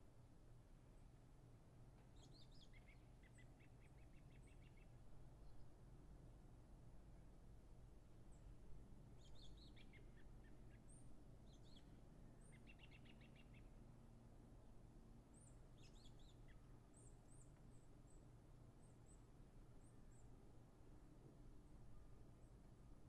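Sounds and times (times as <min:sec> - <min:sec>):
low steady hum: 0:00.0 - 0:23.0
faint bird chirps: 0:02.0 - 0:05.8, 0:09.2 - 0:13.8, 0:15.3 - 0:20.4.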